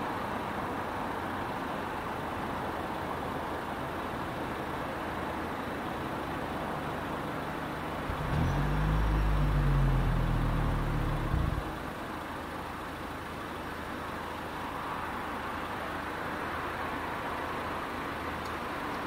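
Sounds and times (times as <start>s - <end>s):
traffic noise: 0.0s - 19.0s
car engine starting and idling: 4.3s - 14.7s.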